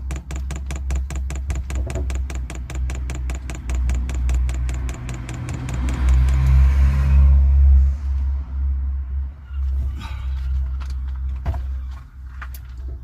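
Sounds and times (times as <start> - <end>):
fuel pump clicking: 0.0 - 6.6.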